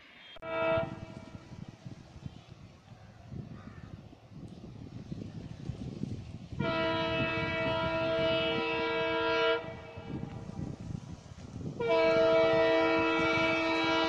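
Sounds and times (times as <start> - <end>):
locomotive horn blasts: 0.2 - 1.6, 6.6 - 10.4, 11.8 - 14.0.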